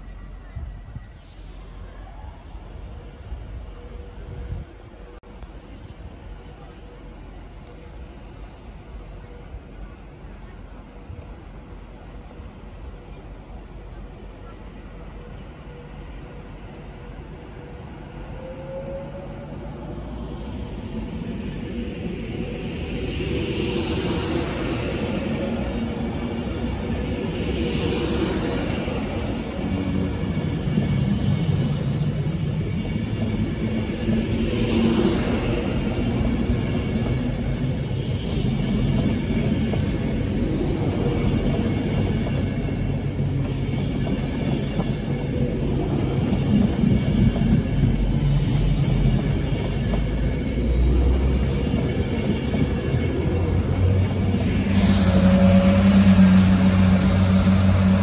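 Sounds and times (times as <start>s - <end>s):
electric train rumbling: 0.0s - 58.0s
diesel train engine droning: 14.2s - 58.0s.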